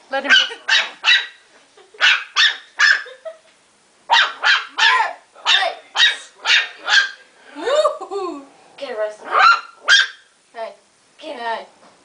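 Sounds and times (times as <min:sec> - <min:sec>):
puppy barking: 0:00.2 - 0:01.4, 0:02.0 - 0:03.2, 0:04.1 - 0:07.2, 0:09.2 - 0:10.3.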